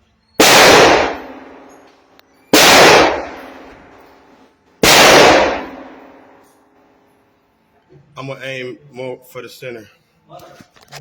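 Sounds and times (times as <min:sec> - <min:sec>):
rifle shots echoing: 0:00.4 - 0:01.8, 0:02.5 - 0:04.0, 0:04.8 - 0:06.4.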